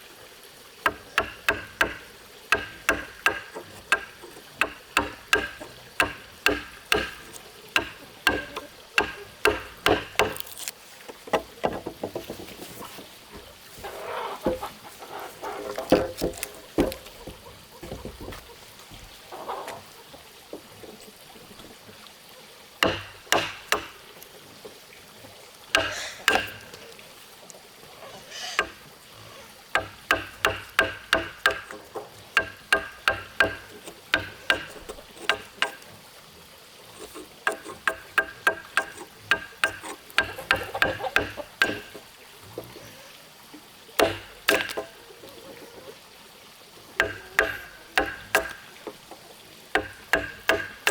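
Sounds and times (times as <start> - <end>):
hand tool striking wood: 0.8 - 10.7, 15.9 - 18.0, 22.8 - 24.0, 25.8 - 26.8, 28.6 - 28.8, 29.8 - 35.8, 37.0 - 42.0, 44.0 - 45.0, 47.0 - 48.6, 49.8 - 50.9.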